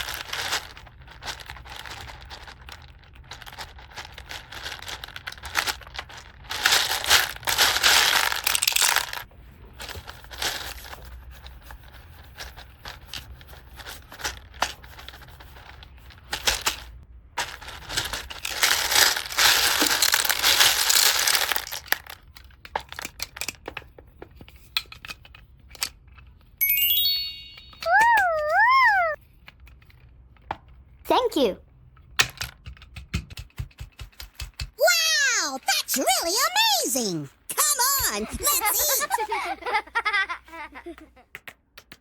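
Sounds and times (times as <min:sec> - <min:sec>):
plastic packaging crinkling and tearing: 0:00.0 - 0:23.4.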